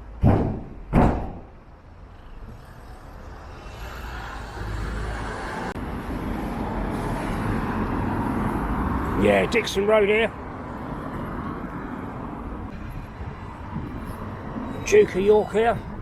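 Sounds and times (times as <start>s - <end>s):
vehicle engine and tyre noise: 0.0s - 16.0s
sharp thump: 0.2s - 1.6s.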